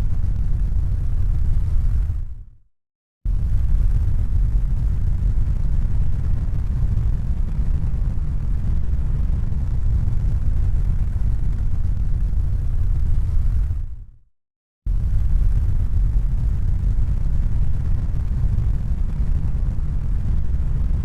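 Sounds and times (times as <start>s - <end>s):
deep rumbling noise: 14.9s - 21.0s.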